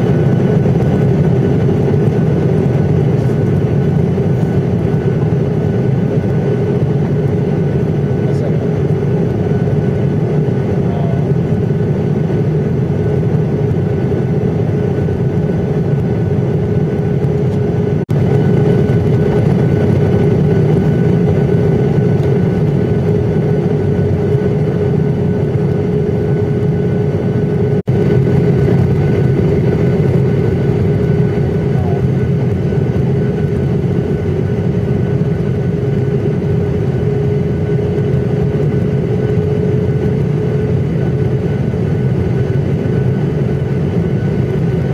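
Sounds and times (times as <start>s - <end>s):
airliner cabin engine drone: 0.0s - 44.9s
steady hum: 0.0s - 44.9s.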